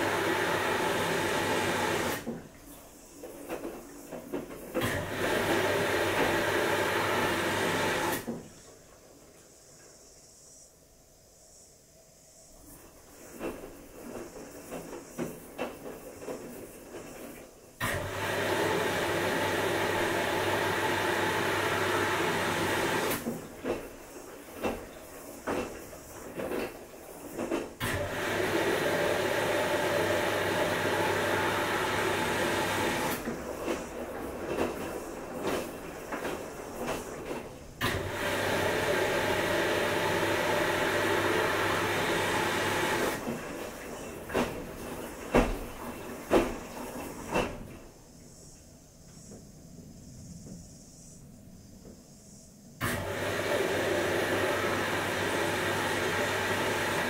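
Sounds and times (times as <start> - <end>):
washing machine humming: 0.0 - 9.8, 12.6 - 57.0.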